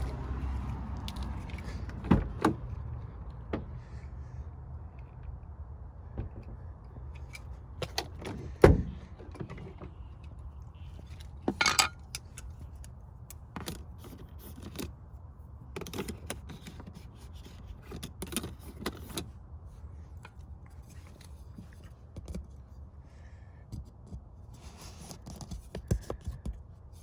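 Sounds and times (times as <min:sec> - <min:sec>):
small metal items clinking: 0:11.5 - 0:12.1.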